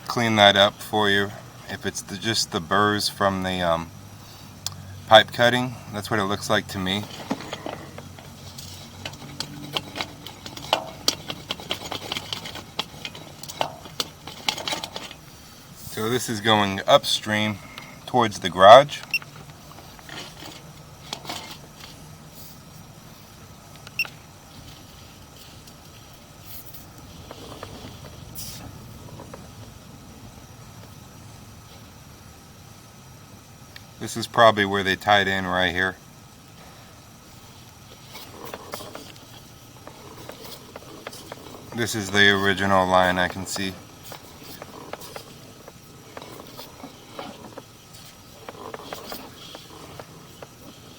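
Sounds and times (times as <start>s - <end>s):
cable scraping in pipe: 5.1s - 22.8s, 24.5s - 29.4s, 37.3s - 50.9s.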